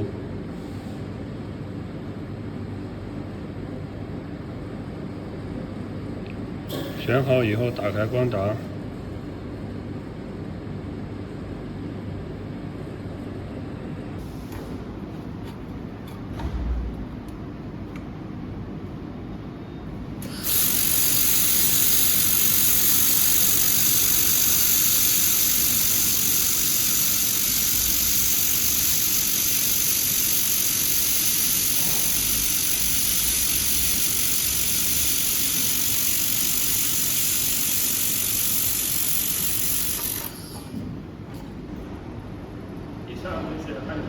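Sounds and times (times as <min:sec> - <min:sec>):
laser welder hissing: 0:06.7 - 0:08.2, 0:20.2 - 0:40.7.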